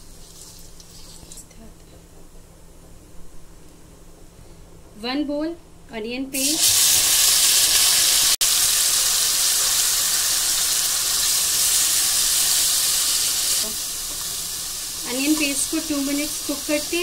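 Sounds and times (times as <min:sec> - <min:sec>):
onion paste sizzling in oil: 0:00.0 - 0:01.4, 0:06.4 - 0:17.0.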